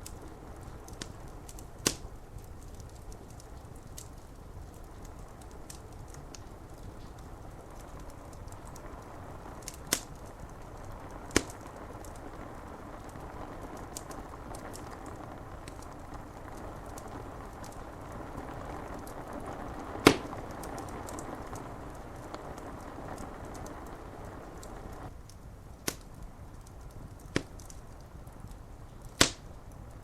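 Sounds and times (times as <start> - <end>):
rain hiss: 0.0 - 30.0
wood fire crackling: 0.0 - 30.0
sharp loud fire pops: 1.8 - 2.1, 11.3 - 11.6, 20.0 - 21.2, 27.3 - 27.7, 29.2 - 29.6.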